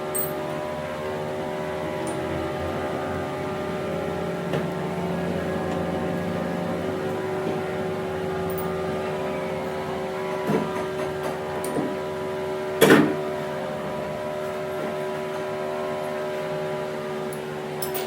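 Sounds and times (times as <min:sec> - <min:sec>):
workshop machine humming: 0:00.0 - 0:18.0.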